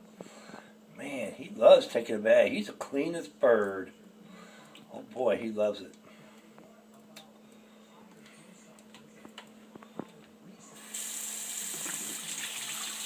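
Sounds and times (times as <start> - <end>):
running water filling a bowl: 10.8 - 13.0.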